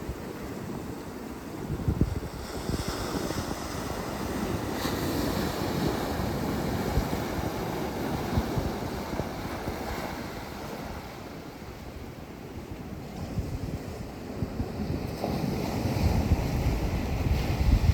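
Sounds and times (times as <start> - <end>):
sea waves washing in: 0.0 - 17.9
wind buffeting microphone: 0.0 - 17.9.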